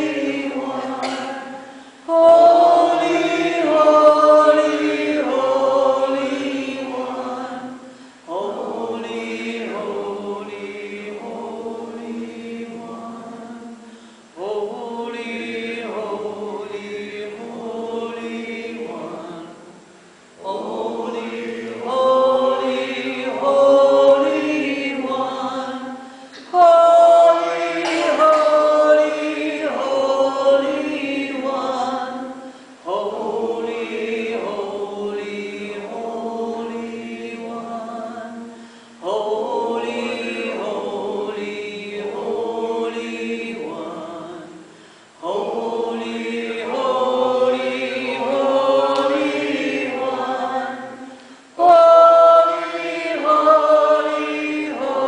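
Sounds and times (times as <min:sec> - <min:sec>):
group of voices chanting: 0:27.0 - 0:30.5.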